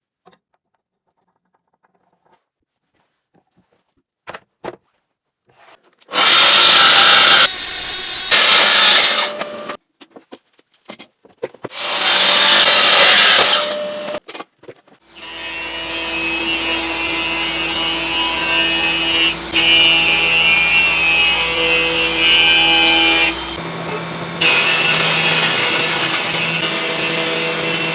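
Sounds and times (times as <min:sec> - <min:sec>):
power saw cutting wood: 0:06.1 - 0:09.8, 0:11.7 - 0:14.2, 0:15.1 - 0:27.9.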